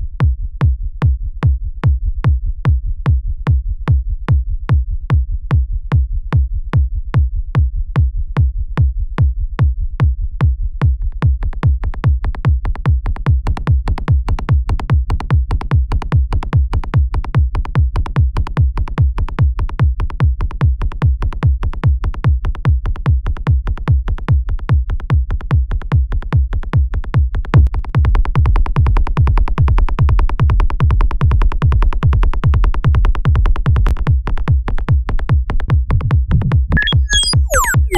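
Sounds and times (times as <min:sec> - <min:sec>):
synthesized kick drum: 0:00.0 - 0:37.9
synth bassline: 0:36.4 - 0:37.9.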